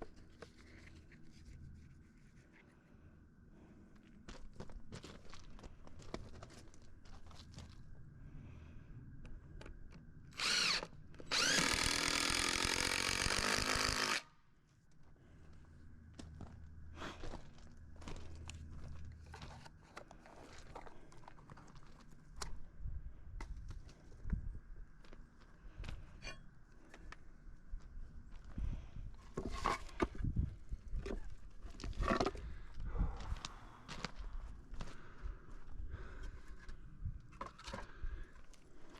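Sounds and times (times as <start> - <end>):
power drill motor: 10.3 - 14.3.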